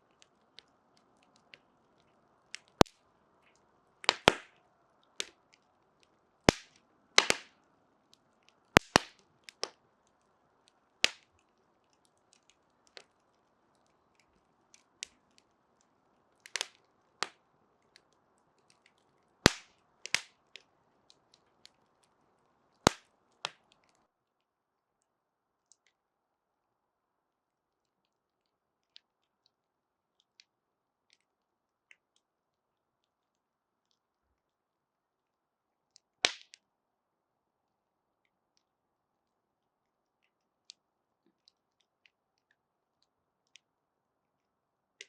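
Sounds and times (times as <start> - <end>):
wood fire crackling: 0.0 - 24.1, 36.2 - 36.6.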